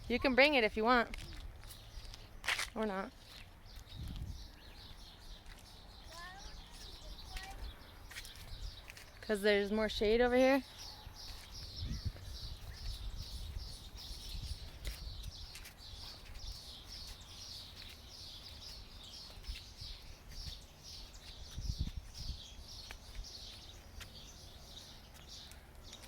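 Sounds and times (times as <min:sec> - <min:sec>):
wind rumble on microphone: 0:03.9 - 0:04.8, 0:11.1 - 0:15.6, 0:21.4 - 0:22.6.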